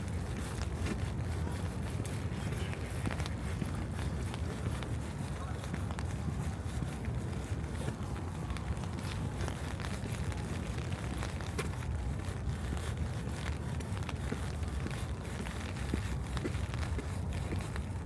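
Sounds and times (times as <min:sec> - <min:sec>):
light rain pattering: 0:00.3 - 0:18.0.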